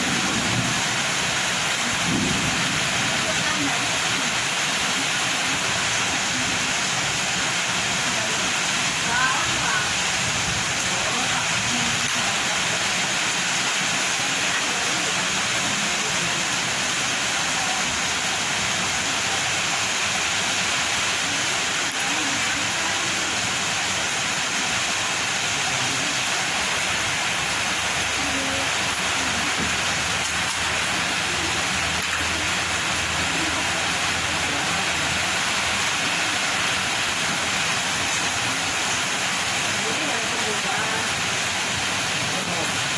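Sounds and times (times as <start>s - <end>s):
strong wind: 0.0s - 5.6s
heavy rain: 0.0s - 42.9s.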